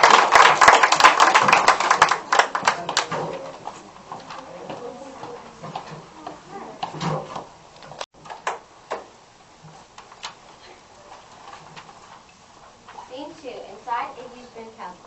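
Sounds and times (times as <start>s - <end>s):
murmur of voices: 2.0s - 7.0s
sharp knocks and clatters: 6.8s - 9.1s.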